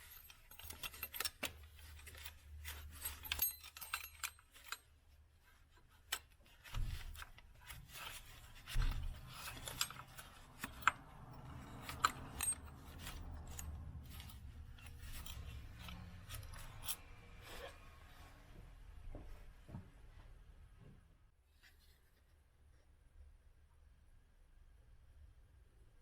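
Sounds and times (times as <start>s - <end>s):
hand tools and metal parts clinking: 0.0s - 17.8s.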